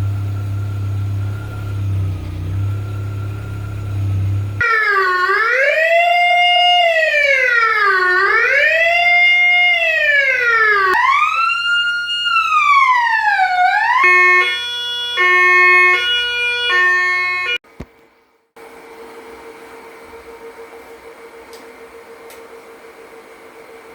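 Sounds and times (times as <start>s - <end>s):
electronic police siren: 0.0s - 17.6s.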